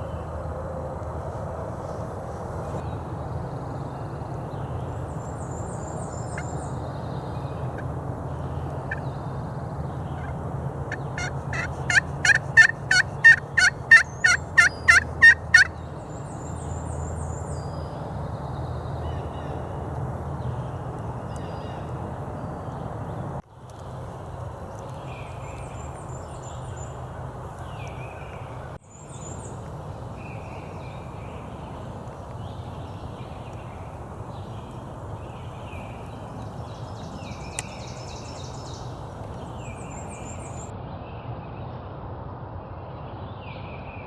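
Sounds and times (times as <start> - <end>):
faint songbird chirps: 2.7 - 40.7
turkey call notes: 5.7 - 40.7.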